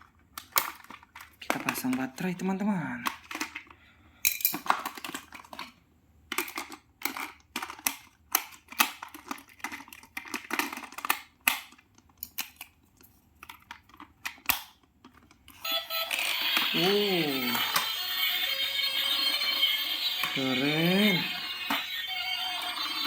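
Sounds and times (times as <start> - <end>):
plastic clicks and rattles: 0.0 - 2.1, 3.0 - 15.6.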